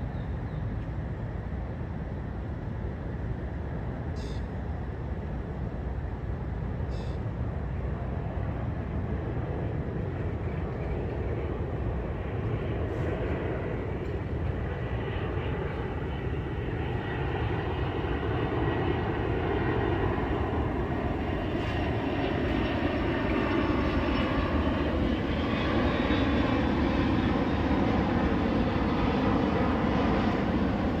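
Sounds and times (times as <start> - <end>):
jet engines roaring: 8.2 - 31.0.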